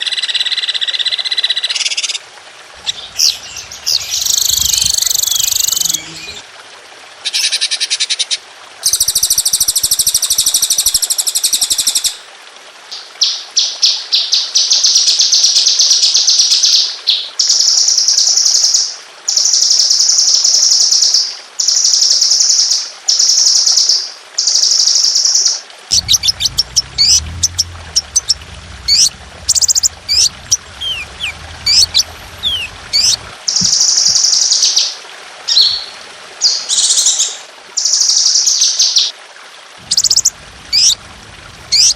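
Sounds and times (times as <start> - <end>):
low hum: 2.7 - 6.5, 25.9 - 33.8, 39.8 - 41.9
songbird trills: 2.8 - 6.4, 25.9 - 33.8, 39.8 - 41.0
songbird whistled notes: 2.9 - 6.4.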